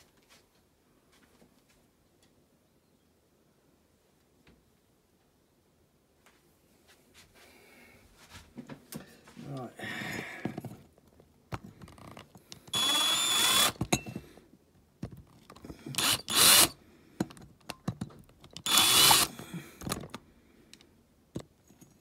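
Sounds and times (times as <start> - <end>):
power drill whining: 12.7 - 13.8, 15.7 - 16.8, 18.6 - 19.6.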